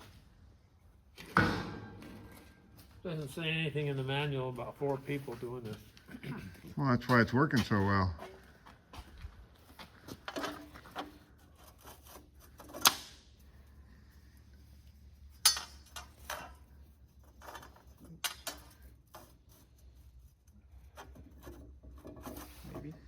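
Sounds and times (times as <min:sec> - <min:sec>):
steel parts clanking: 0:15.3 - 0:16.7.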